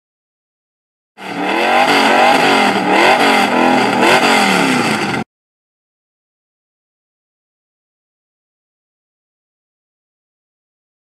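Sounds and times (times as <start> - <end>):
race car engine revving: 1.2 - 5.3.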